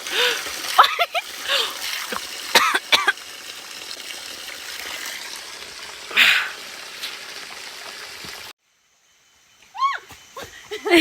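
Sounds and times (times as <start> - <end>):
stream trickling: 0.0 - 8.5
water splash: 0.0 - 8.5.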